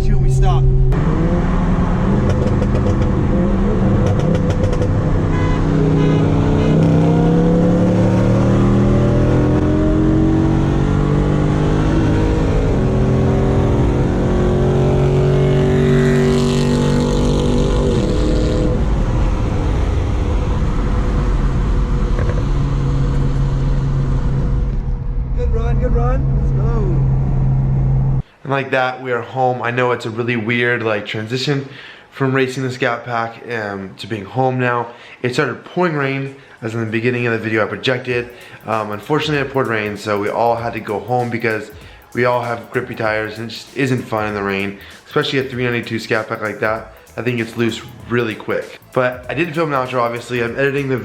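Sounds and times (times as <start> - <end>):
car engine revving: 0.0 - 28.2.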